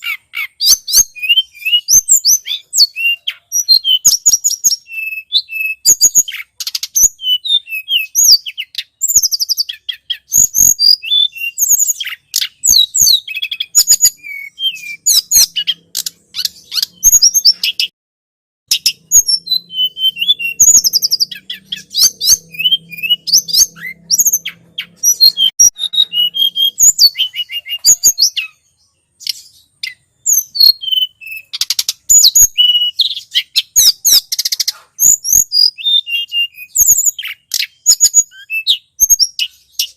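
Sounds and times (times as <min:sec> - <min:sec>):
high-pitched bird chirps and trills: 0:00.0 - 0:17.9, 0:18.7 - 0:39.9.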